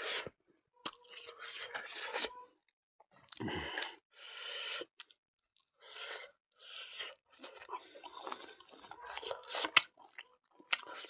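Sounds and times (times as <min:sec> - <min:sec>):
person chewing food: 0:00.8 - 0:02.3, 0:03.2 - 0:04.0, 0:04.7 - 0:11.0.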